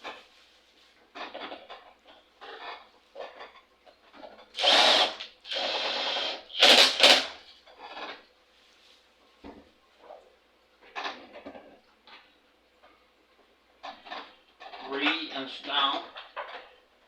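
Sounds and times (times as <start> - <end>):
cordless drill spinning: 4.6 - 7.4.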